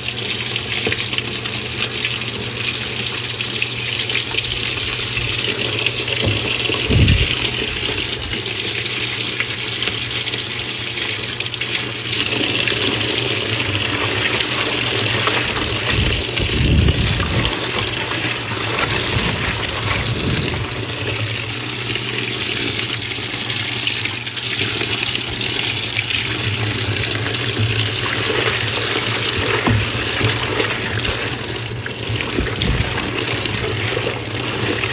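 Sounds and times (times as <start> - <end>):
water rushing in washing machine: 0.0 - 34.9
steady low hum: 6.2 - 8.4, 15.4 - 22.0
low thumps: 6.8 - 7.6, 15.9 - 17.6.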